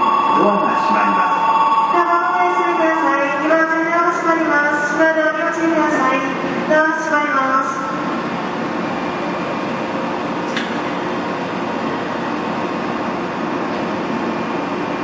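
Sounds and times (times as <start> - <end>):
train hum: 0.0 - 15.0.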